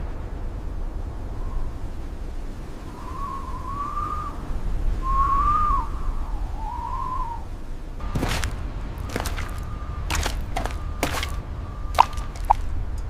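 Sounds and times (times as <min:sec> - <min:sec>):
steady low rumble: 0:00.0 - 0:05.1, 0:05.8 - 0:13.0
thin wavering whistle: 0:02.9 - 0:07.6, 0:09.0 - 0:12.8.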